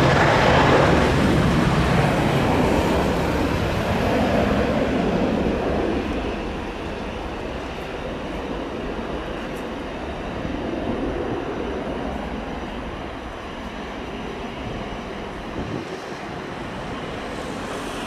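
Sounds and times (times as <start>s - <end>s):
jet engine rumble: 0.0s - 18.0s.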